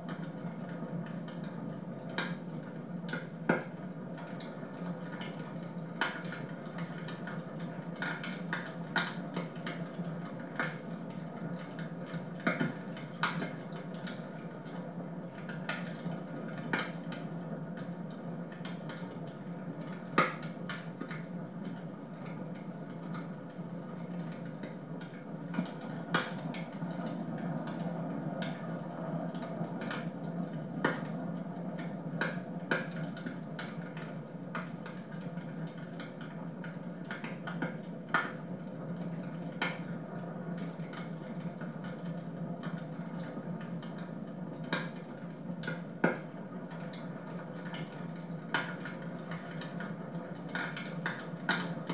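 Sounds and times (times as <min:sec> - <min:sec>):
wood fire crackling and popping: 0:00.0 - 0:51.9.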